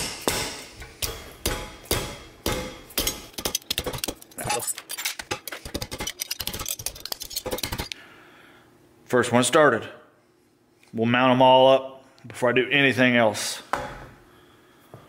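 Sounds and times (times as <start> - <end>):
hammer tapping metal: 0.0 - 4.4.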